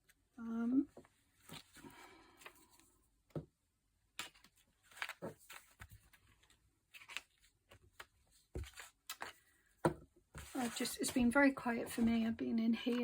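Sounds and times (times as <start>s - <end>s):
paper rustling: 4.2s - 9.5s, 10.4s - 12.2s.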